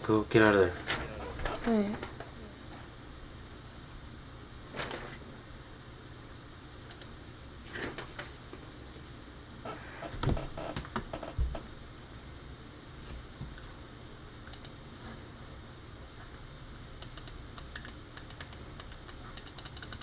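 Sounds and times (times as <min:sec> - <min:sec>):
faint steady hum: 0:00.0 - 0:20.0
computer keyboard clicks: 0:06.9 - 0:07.2, 0:14.5 - 0:14.8, 0:17.0 - 0:20.0.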